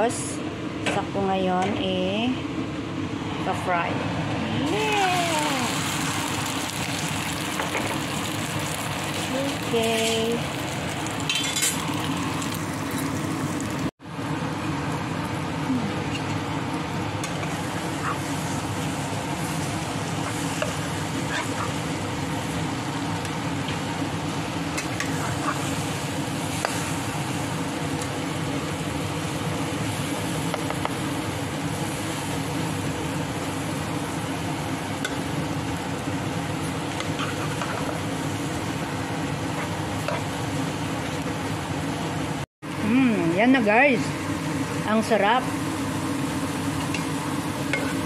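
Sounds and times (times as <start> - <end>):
food sizzling in a pan: 4.6 - 13.9, 17.4 - 41.6.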